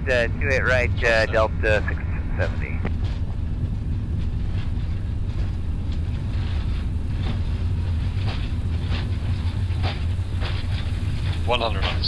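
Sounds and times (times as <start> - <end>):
jet engines rumbling: 0.0 - 12.0
wheels rolling on runway: 2.9 - 12.0.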